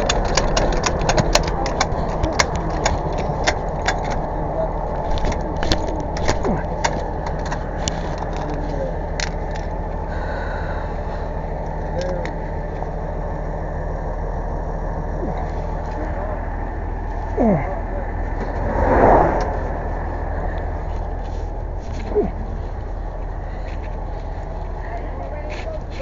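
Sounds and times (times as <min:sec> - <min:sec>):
vehicle engine idling: 0:00.0 - 0:26.0
brief rush of noise: 0:18.5 - 0:21.1.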